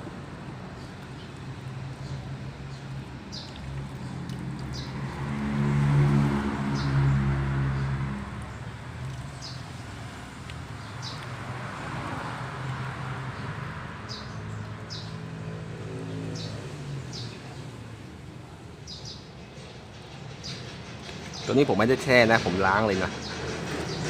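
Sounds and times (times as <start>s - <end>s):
engine running: 19.8s - 24.0s.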